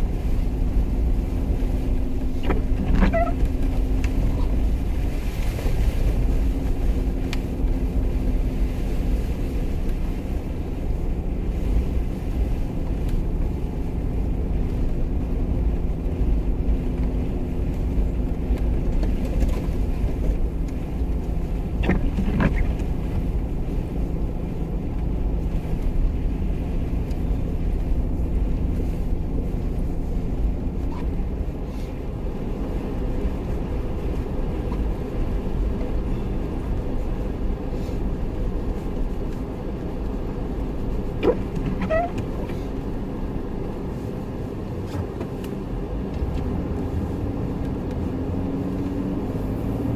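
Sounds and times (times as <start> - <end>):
car engine rumbling: 0.0 - 49.9
brief squeak: 2.5 - 3.5, 41.2 - 42.6.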